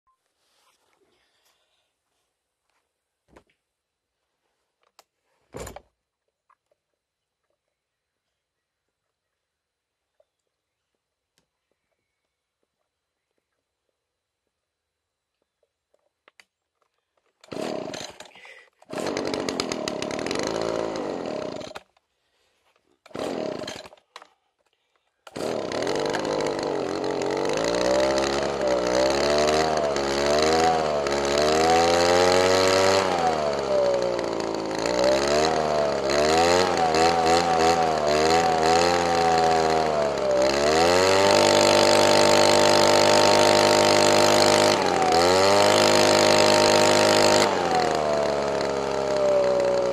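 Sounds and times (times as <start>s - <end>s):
small engine starting and idling: 17.4s - 22.0s, 23.0s - 24.1s, 25.2s - 49.9s.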